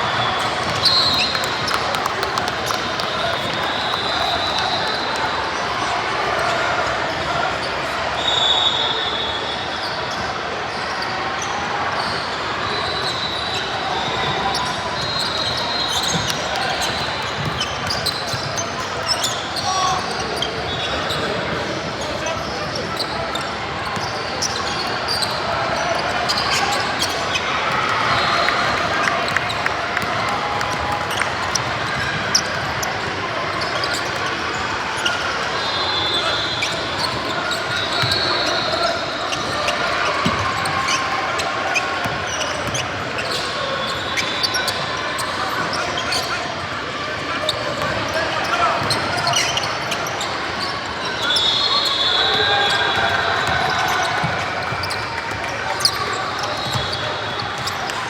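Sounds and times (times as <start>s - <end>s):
sneaker squeaks: 0.0s - 5.5s, 8.2s - 58.0s
crowd chatter: 0.0s - 58.0s
gym hall noise: 0.0s - 58.0s
basketball bouncing: 0.6s - 4.0s
basketball bouncing on court: 0.6s - 4.8s, 40.2s - 40.8s, 53.0s - 57.0s.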